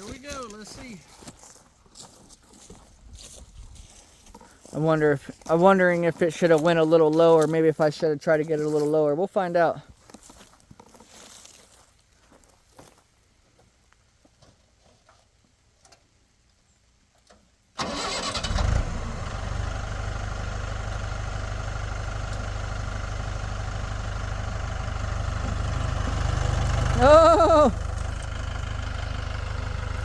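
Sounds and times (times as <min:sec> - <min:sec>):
vehicle engine starting and idling: 0:17.8 - 0:30.0.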